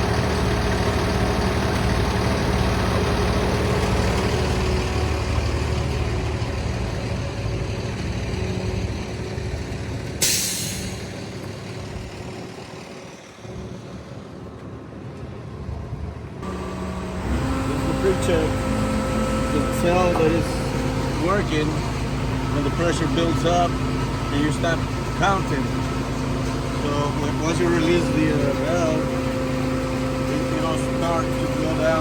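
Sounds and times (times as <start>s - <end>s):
truck engine and fuel pump running: 0.0s - 32.0s.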